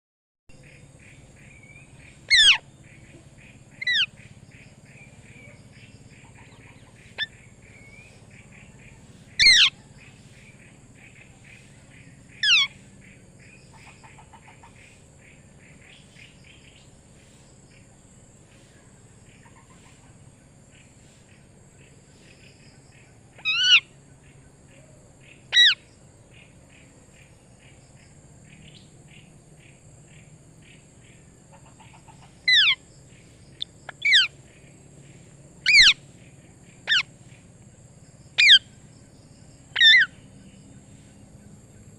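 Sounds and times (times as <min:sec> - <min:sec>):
faint steady chirping: 0:00.5 - 0:41.9
parrot squawks: 0:02.3 - 0:02.6, 0:03.8 - 0:04.1, 0:09.4 - 0:09.8, 0:12.4 - 0:12.7, 0:23.4 - 0:23.9, 0:25.5 - 0:25.8, 0:32.5 - 0:32.8, 0:33.9 - 0:34.3, 0:35.6 - 0:36.0, 0:36.9 - 0:37.1, 0:38.4 - 0:38.6, 0:39.8 - 0:40.1.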